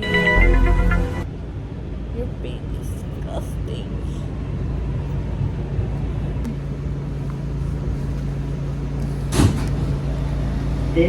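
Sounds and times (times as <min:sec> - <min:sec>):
subway car rumble: 0:00.0 - 0:11.0
loud thump: 0:09.3 - 0:09.9.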